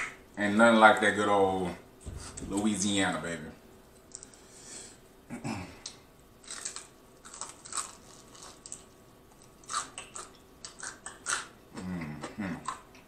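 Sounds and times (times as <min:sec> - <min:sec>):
crunching fried chicken: 0:06.4 - 0:13.0.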